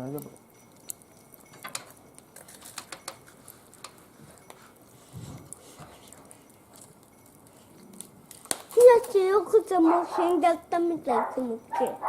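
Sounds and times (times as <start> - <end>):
wood fire crackling: 0.0 - 12.0.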